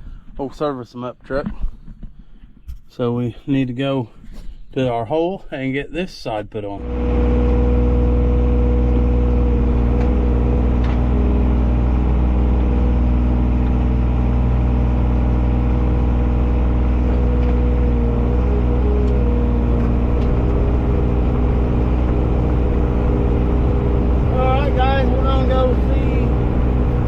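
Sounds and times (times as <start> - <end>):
truck engine droning: 6.8 - 27.0.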